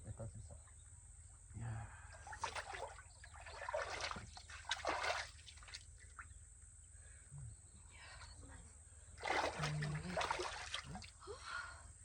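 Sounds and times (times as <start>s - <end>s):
pool water splashing: 2.2s - 6.2s, 9.2s - 11.2s
water lapping: 2.2s - 6.2s, 9.2s - 11.2s.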